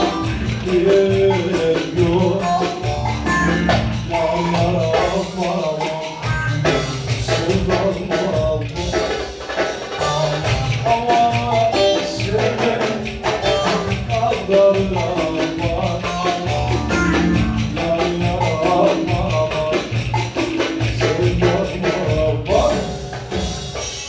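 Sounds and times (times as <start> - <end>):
folk dance music: 0.0 - 5.4, 10.0 - 20.6.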